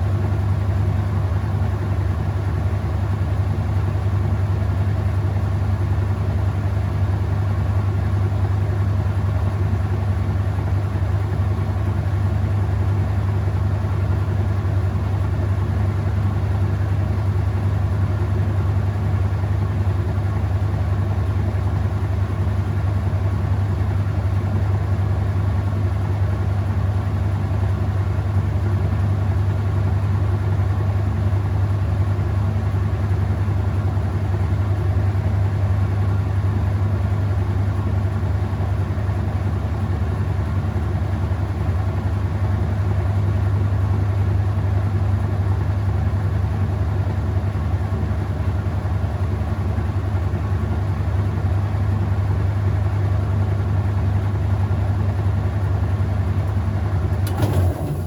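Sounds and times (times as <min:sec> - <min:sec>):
washing machine motor hum: 0:56.1 - 0:58.0.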